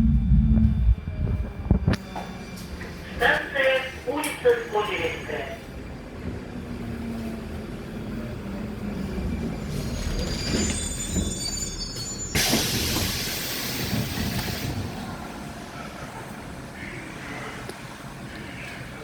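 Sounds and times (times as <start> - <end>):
train hum: 0.0 - 19.0
metro train brakes squealing: 7.7 - 15.1.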